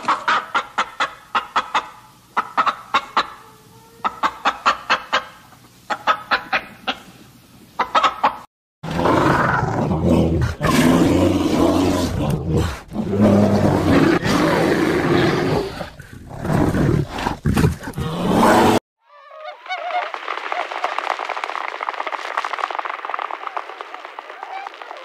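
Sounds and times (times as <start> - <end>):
hen clucking: 0.0 - 7.2, 7.8 - 8.5.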